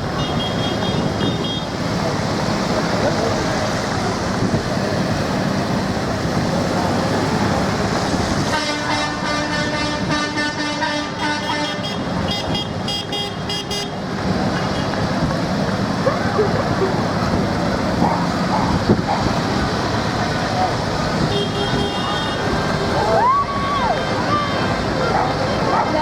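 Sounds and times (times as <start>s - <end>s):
tractors running by: 0.0s - 26.0s
traffic noise: 0.0s - 26.0s
horn tooting: 0.1s - 1.8s, 8.4s - 14.0s, 21.2s - 22.8s.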